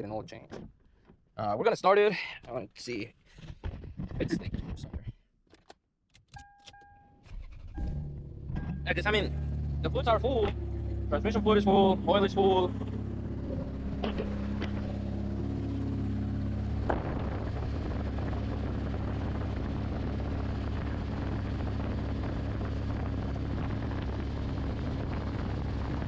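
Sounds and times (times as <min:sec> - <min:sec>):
car engine idling: 0:07.3 - 0:26.0.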